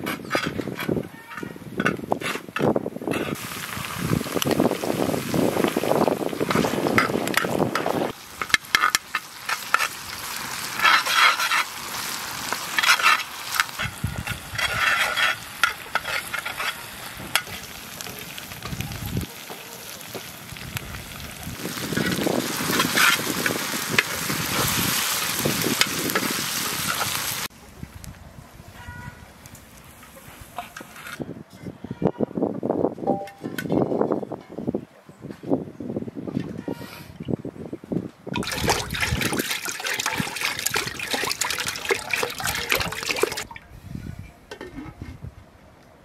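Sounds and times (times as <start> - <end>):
hot oil sizzling in a pan: 3.4 - 27.5
metal spoon scraping a pan: 6.5 - 10.0, 10.7 - 17.6.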